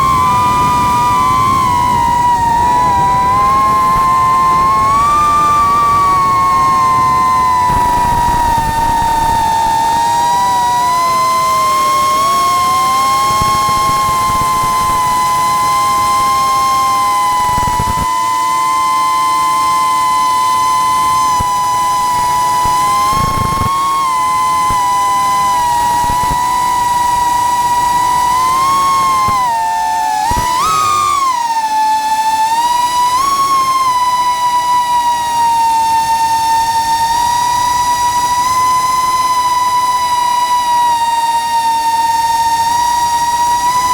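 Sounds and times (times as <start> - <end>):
quadcopter motors whining: 0.0 - 43.9.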